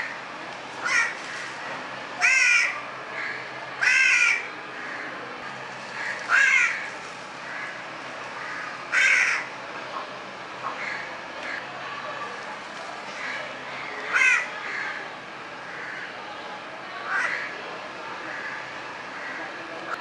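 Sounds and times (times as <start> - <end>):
young crow cawing: 0.8 - 1.4, 2.2 - 5.1, 6.0 - 7.8, 8.4 - 9.5, 13.2 - 15.0, 17.0 - 17.5, 18.3 - 19.4
fainter crow calls: 0.8 - 1.6, 2.2 - 5.2, 5.9 - 9.5, 10.6 - 11.6, 13.2 - 15.0, 15.6 - 16.2, 17.0 - 17.6, 18.3 - 19.5.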